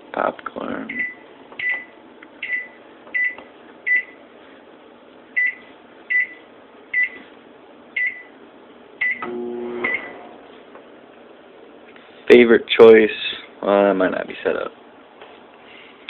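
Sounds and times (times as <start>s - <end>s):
microwave keypad beeping: 1.0s - 4.2s, 8.0s - 8.3s, 9.0s - 10.2s
low hum: 9.0s - 11.2s.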